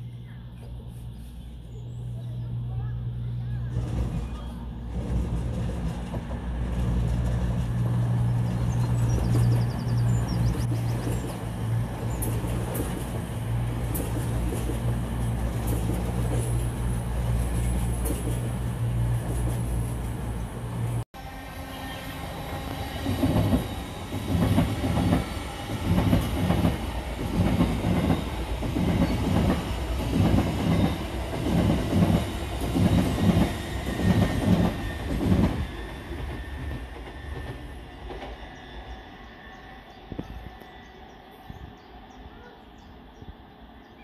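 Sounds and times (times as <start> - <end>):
train wheels clickety-clack: 3.7 - 20.1, 22.7 - 38.9.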